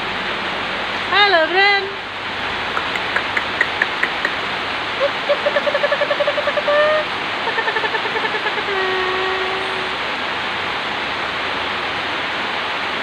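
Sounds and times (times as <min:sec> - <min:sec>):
steady rain: 0:00.0 - 0:13.0
rapid trilled call: 0:02.8 - 0:04.4.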